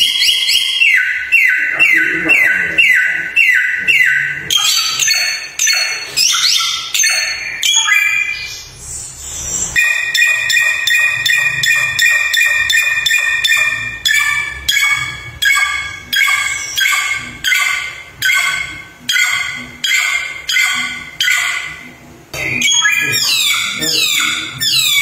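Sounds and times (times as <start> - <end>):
songbird whistled song: 0.0 - 21.6, 22.4 - 25.0.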